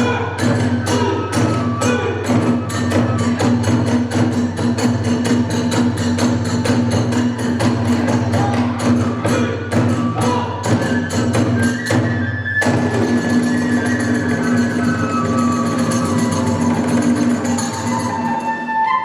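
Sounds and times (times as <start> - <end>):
high flute melody: 0.0 - 4.9, 8.3 - 19.0
fast drum strikes: 0.0 - 11.9.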